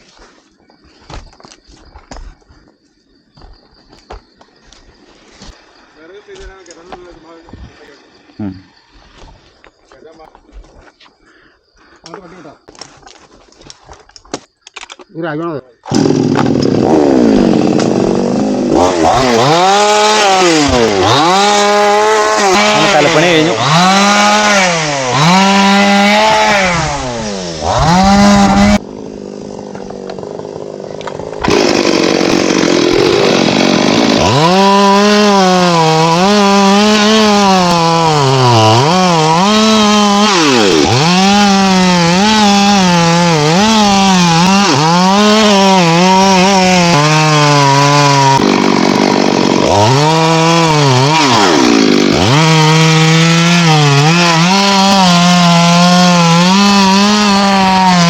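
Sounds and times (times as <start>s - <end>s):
chainsaw cutting wood: 15.9s - 58.0s.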